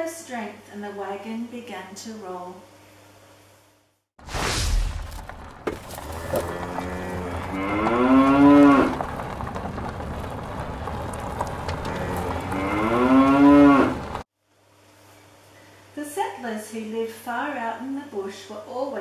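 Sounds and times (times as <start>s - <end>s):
cattle mooing: 6.0s - 9.0s, 11.7s - 14.2s.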